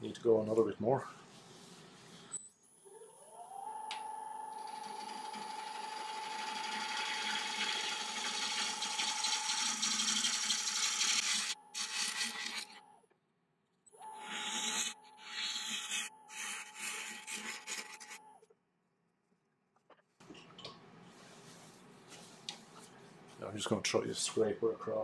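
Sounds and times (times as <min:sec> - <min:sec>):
wood lathe motor whine: 0:02.9 - 0:12.7, 0:14.0 - 0:16.2
turning tool scraping wood: 0:04.7 - 0:12.8, 0:14.1 - 0:18.4.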